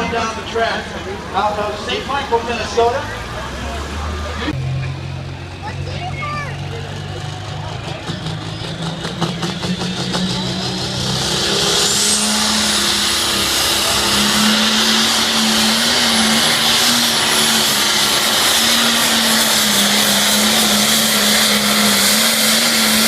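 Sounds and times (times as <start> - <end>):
tractor engine under load: 0.0 - 23.0.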